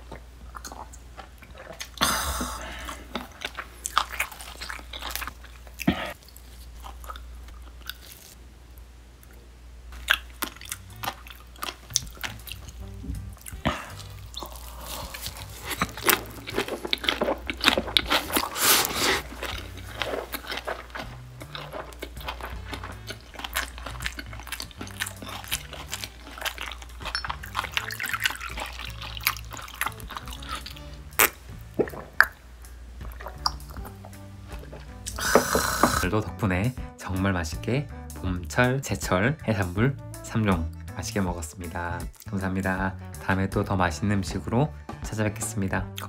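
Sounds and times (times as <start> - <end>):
wet crunching chewing: 0.0 - 8.4, 9.2 - 36.2
soft background music with bass: 10.0 - 46.0.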